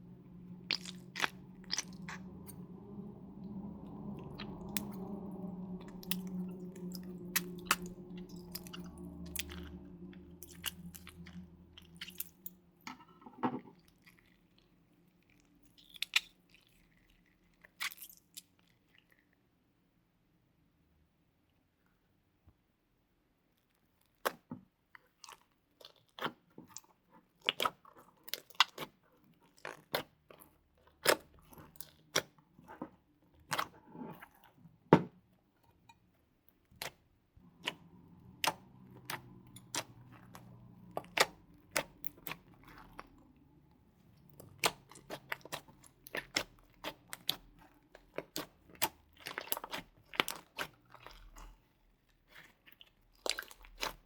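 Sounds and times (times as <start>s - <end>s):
slime squished by hand: 0.4s - 12.5s, 36.6s - 54.0s.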